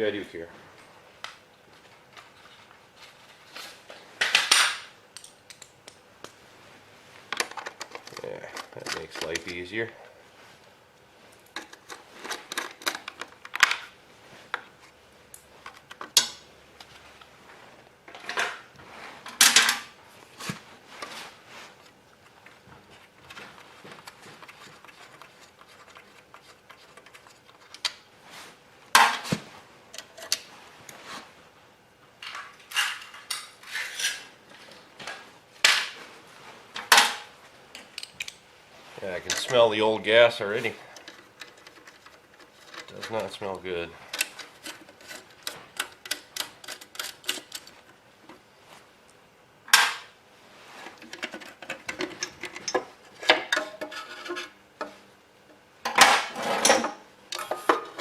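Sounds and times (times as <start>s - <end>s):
tools and metal parts clinking: 51.1s - 54.5s.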